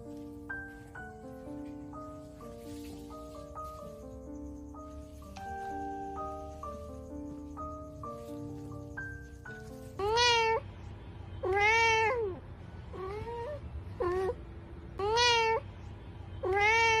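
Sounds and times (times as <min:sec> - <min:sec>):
kitten meowing loudly: 0:10.0 - 0:10.6, 0:11.4 - 0:12.3, 0:15.0 - 0:15.6, 0:16.4 - 0:17.0.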